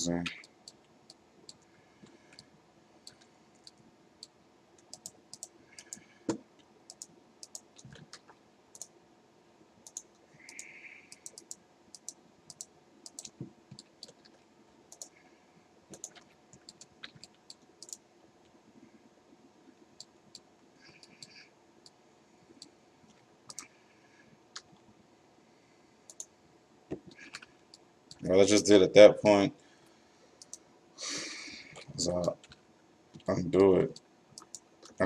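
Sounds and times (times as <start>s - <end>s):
mouse and keyboard clicks: 4.8s - 8.9s, 9.8s - 15.1s, 15.9s - 18.0s, 33.2s - 35.0s.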